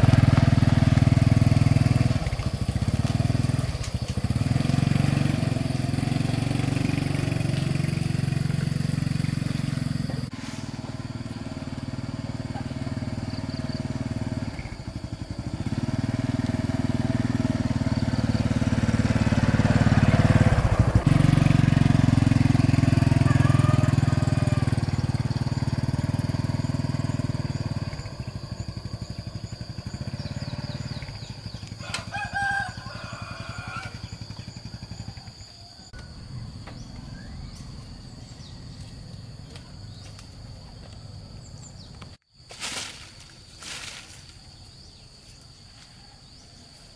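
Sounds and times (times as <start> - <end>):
old diesel engine running: 0.0 - 42.2
rooster crowing: 22.1 - 25.9, 31.7 - 36.6.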